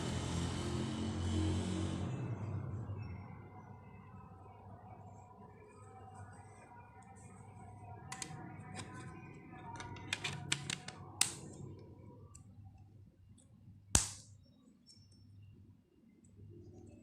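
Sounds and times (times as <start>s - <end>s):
loud sharp snap: 14.0s - 14.4s.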